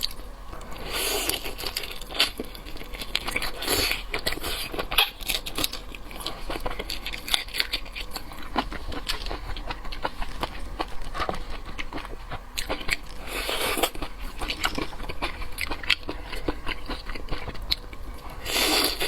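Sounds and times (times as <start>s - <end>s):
chewing with small clicks: 0.0s - 19.0s.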